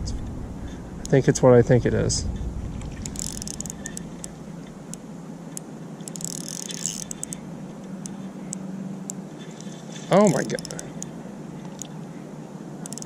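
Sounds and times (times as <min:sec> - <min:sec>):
fishing reel gear whir: 0:02.8 - 0:12.0
small mechanical clicks and rattles: 0:03.0 - 0:04.3, 0:06.0 - 0:07.4, 0:10.3 - 0:11.1.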